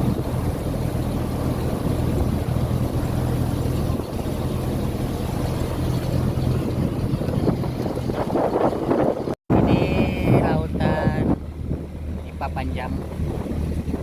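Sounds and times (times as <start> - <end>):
boat engine drone: 0.0 - 14.0
rushing water: 0.0 - 14.0
wind: 0.0 - 14.0.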